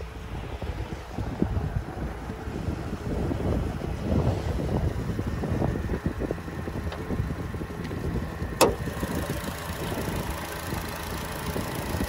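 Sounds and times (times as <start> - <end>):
car engine idling: 0.1 - 12.0
hood latch click: 8.6 - 9.2.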